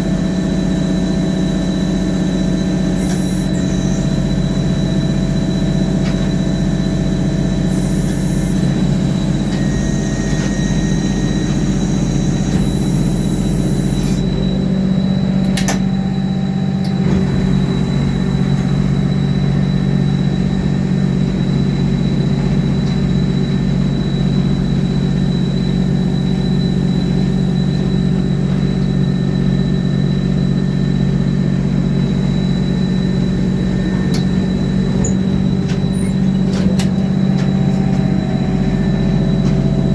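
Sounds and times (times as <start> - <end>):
drill machine engine drone: 0.0 - 39.9
high-pitched squeal: 1.4 - 22.2.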